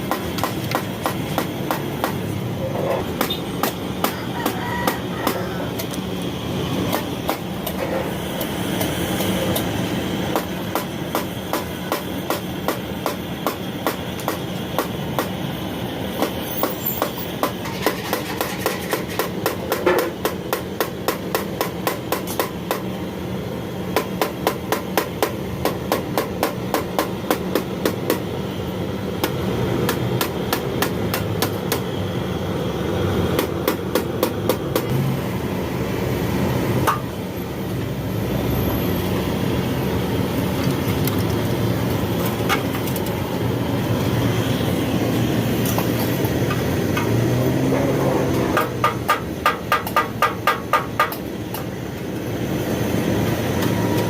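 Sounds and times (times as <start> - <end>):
steady background hum: 0.0 - 54.0
hammer tapping on metal: 36.8 - 37.1, 48.5 - 51.6.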